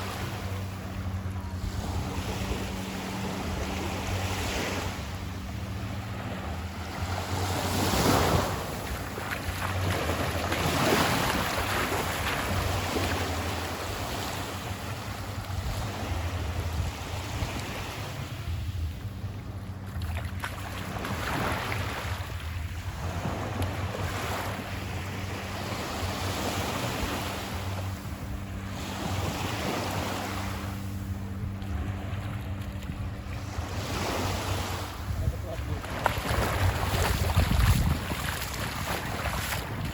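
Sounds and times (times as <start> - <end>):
waves washing onto beach: 0.0 - 19.1, 19.7 - 39.9
steady low hum: 0.0 - 39.9
wind on microphone: 20.9 - 39.9.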